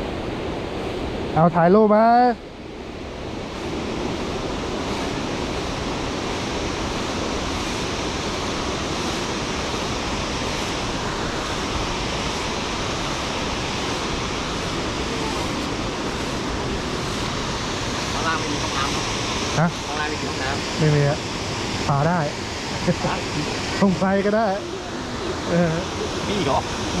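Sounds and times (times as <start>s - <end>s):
waterfall roaring: 2.8s - 27.0s.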